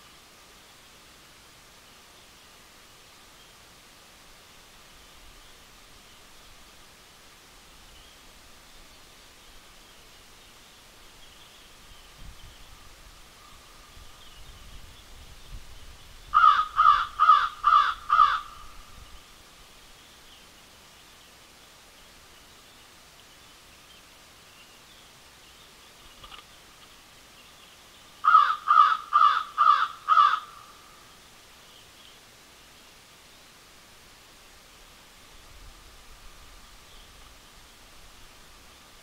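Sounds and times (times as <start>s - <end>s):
bird calls: 7.9s - 21.4s, 22.0s - 32.9s.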